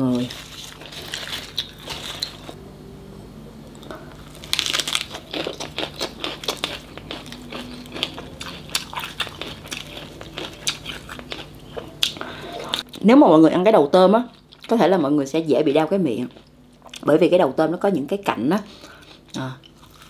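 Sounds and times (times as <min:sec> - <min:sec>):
crunchy biting and chewing: 0:00.2 - 0:02.6, 0:03.8 - 0:13.0, 0:18.8 - 0:20.0.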